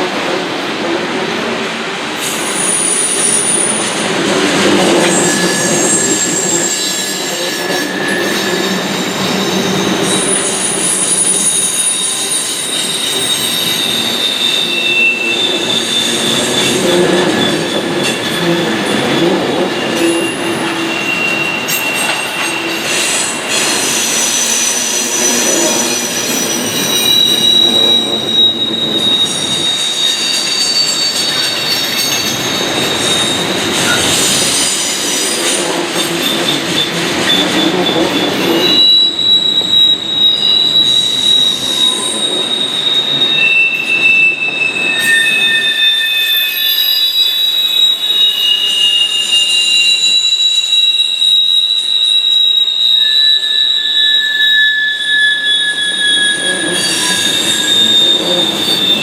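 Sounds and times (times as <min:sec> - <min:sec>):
freight train rumbling past: 0:00.0 - 0:45.4
wheel flange squeals: 0:02.2 - 0:59.0.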